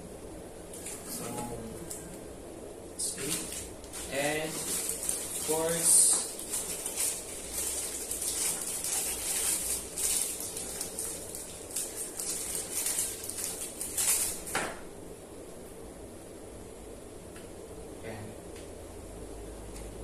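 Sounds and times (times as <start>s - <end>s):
plastic packaging rustling: 3.1s - 14.6s.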